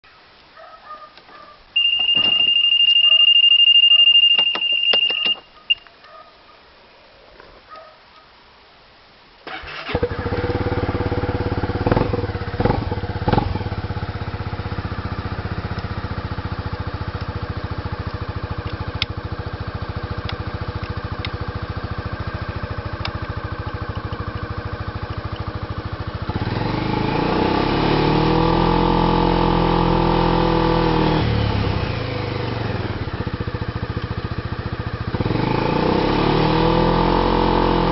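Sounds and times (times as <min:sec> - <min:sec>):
steady high beep: 0:01.8 - 0:05.8
scooter engine idling and revving: 0:09.5 - 0:37.9.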